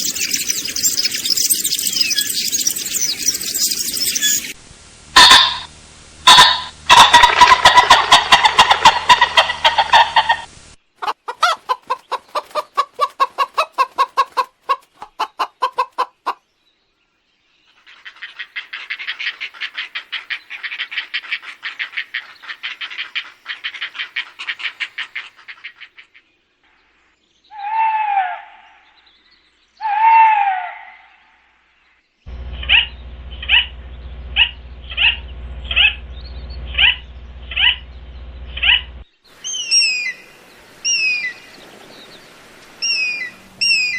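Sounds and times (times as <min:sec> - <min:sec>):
bird calls: 0:00.0 - 0:04.6, 0:06.3 - 0:16.4, 0:31.8 - 0:43.9
low hum: 0:32.3 - 0:39.1.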